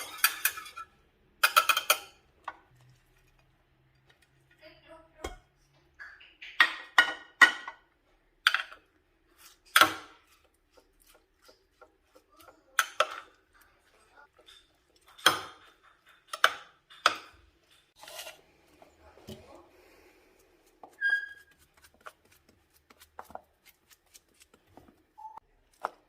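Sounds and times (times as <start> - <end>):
dishes and utensils clinking: 0.0 - 4.6, 11.4 - 19.6.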